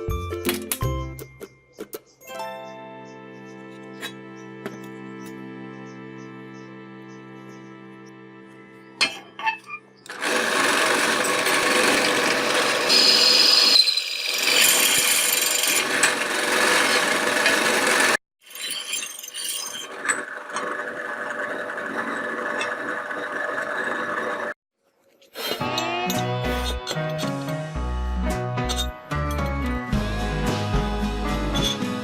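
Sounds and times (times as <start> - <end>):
power tool grinding metal: 9.4 - 24.5.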